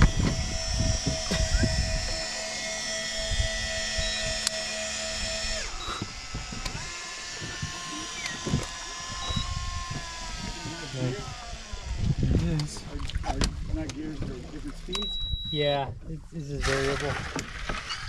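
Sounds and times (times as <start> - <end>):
electric fishing reel motor whining: 0.0 - 12.8, 17.5 - 18.0.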